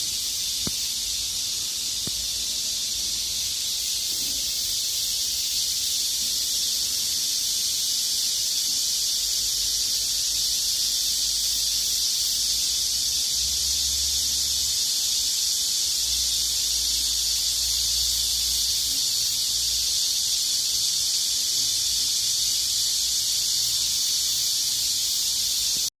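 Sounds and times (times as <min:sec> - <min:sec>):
cicadas buzzing: 0:00.0 - 0:25.9.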